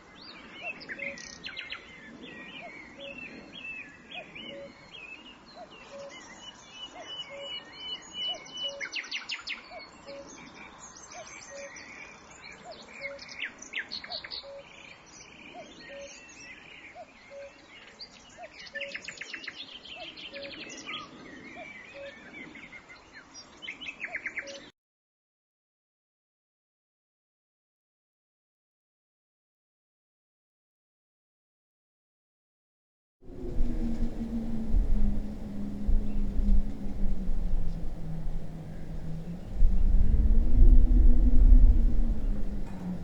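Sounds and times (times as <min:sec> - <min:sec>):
wild birds singing: 0:33.2 - 0:43.0.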